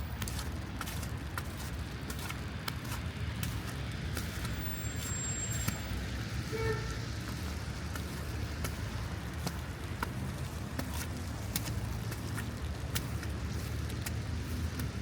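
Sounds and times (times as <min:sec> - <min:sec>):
footsteps on pavement: 0:00.0 - 0:05.1, 0:07.0 - 0:15.0
road traffic rumble: 0:00.0 - 0:15.0.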